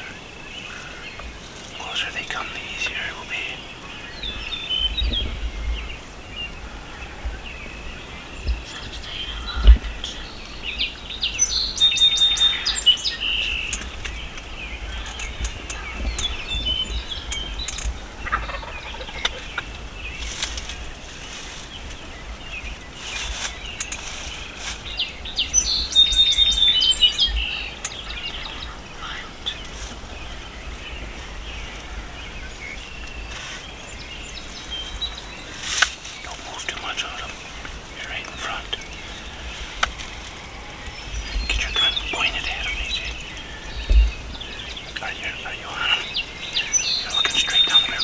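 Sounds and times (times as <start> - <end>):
wild turkeys gobbling: 18.2 - 19.9.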